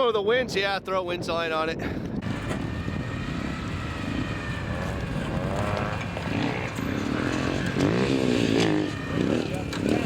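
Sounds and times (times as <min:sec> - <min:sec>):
vehicle engine revving: 0:02.2 - 0:10.0.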